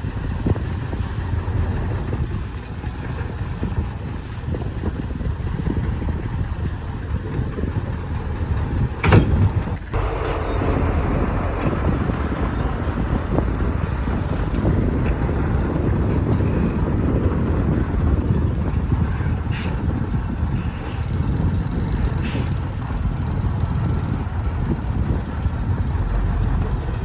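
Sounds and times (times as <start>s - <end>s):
heavy diesel engine rumbling: 0.0s - 27.0s.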